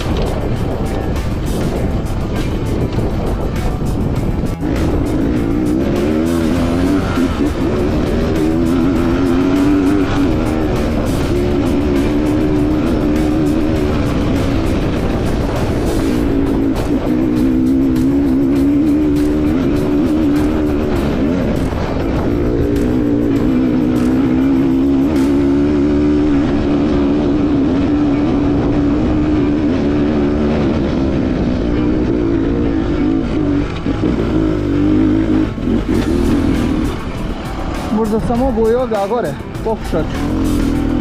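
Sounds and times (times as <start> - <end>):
sharp ticks: 0.0 - 29.0
heavy low rumble: 0.0 - 41.0
motorcycle engine running under load: 0.0 - 41.0.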